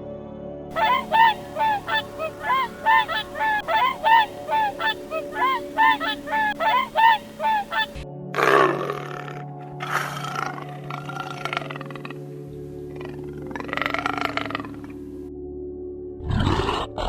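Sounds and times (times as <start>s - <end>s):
bird honking calls: 0.7s - 8.0s
harsh rasping animal calls: 0.7s - 8.0s, 13.0s - 15.0s.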